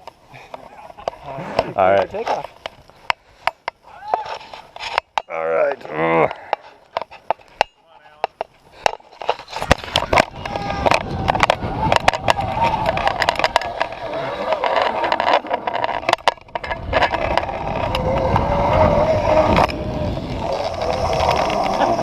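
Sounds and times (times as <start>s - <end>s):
zip line pulley whining on cable: 9.0s - 22.0s
wind buffeting microphone: 9.4s - 22.0s.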